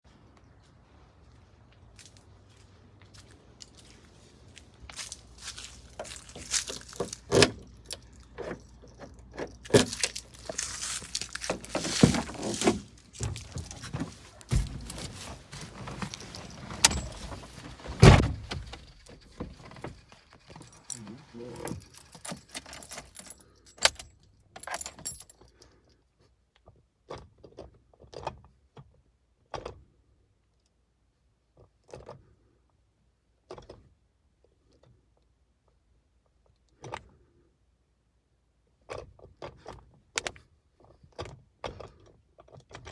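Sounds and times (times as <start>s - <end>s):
gear lever clunking: 6.0s - 24.0s.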